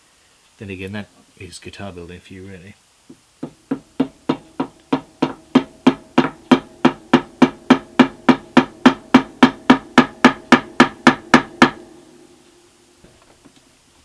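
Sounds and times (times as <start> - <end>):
small hammer tapping wood: 3.1 - 11.8.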